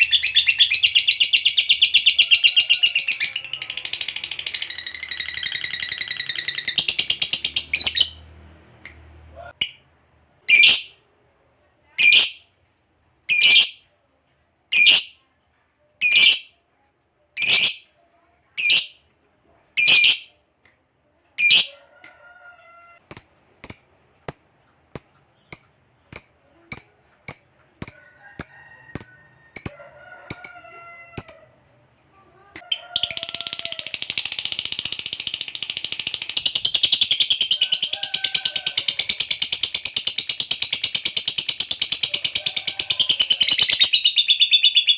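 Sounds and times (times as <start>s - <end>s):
lovebird calling: 4.4s - 8.2s.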